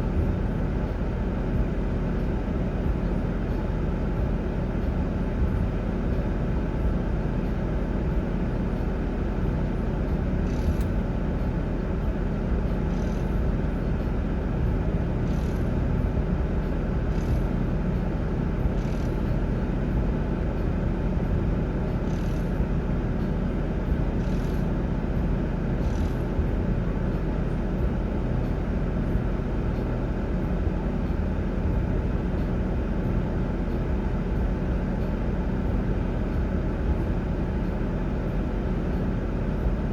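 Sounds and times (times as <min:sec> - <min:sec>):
vehicle low rumble: 0:00.0 - 0:39.9.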